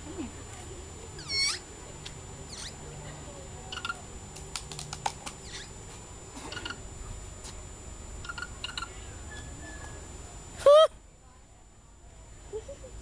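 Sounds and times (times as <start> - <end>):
birds chirping: 2.5 - 2.8, 5.4 - 5.8, 6.4 - 7.1, 8.2 - 10.1.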